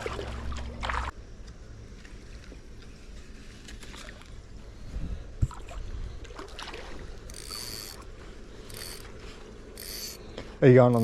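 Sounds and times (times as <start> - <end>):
water sloshing around wading legs: 0.0 - 1.1, 5.4 - 7.6.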